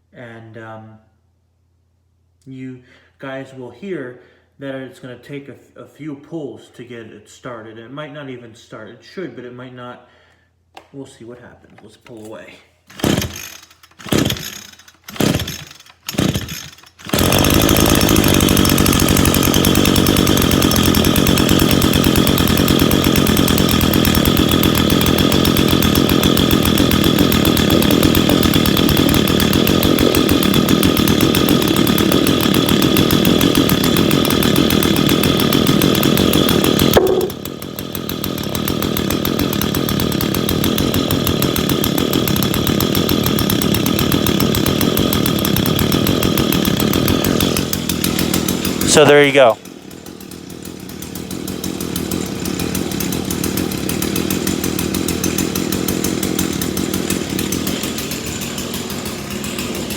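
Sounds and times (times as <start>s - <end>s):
string trimmer engine running: 12.9s - 59.9s.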